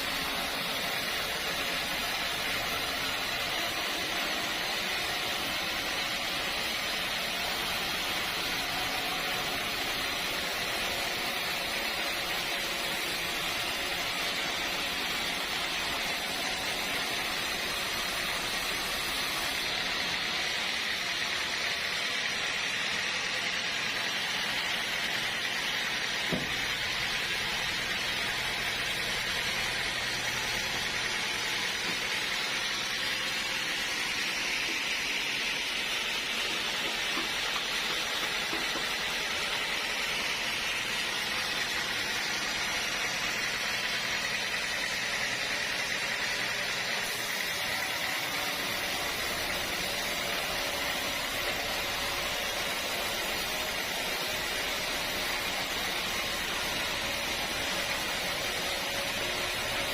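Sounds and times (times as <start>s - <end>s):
sawmill machinery hissing: 0.0s - 59.9s
small knock: 26.3s - 26.6s.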